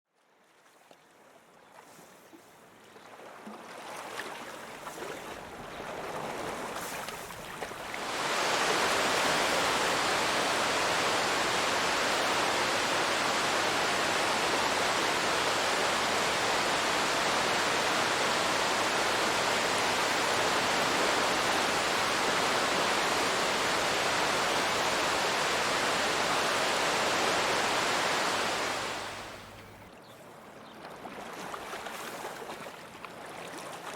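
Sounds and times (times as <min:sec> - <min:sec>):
waterfall rushing: 0:07.8 - 0:29.8.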